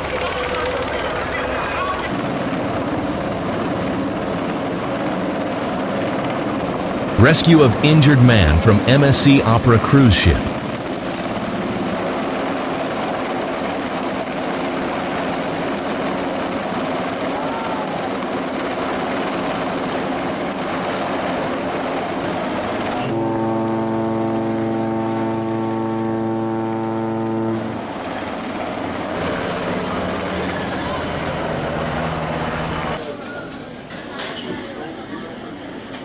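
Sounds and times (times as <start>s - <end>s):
ship's horn blast: 23.1s - 28.4s.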